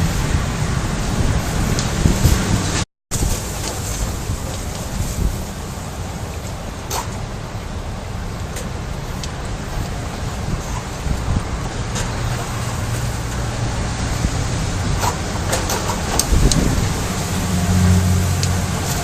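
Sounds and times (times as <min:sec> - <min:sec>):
steady rushing noise: 0:00.0 - 0:19.0
low motor hum: 0:04.2 - 0:19.0.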